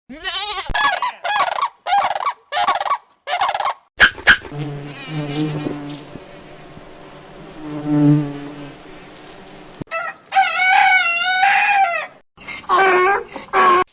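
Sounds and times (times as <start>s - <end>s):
insect buzzing: 4.4s - 9.9s.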